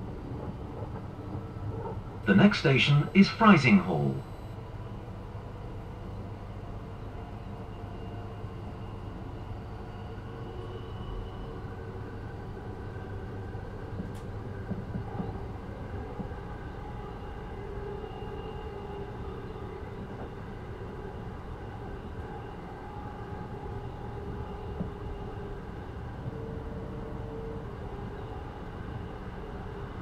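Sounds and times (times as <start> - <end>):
train wheels rumbling on track: 0.0 - 2.6.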